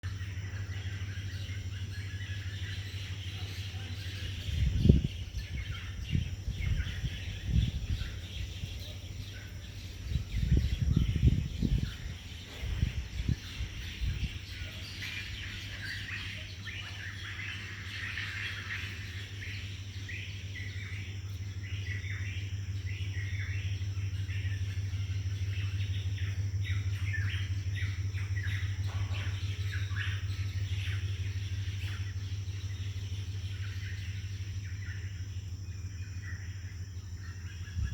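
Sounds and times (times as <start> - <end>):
birds chirping and calling: 0.0 - 37.9
steady low hum: 0.0 - 37.9
loud low rumbles: 4.0 - 16.0.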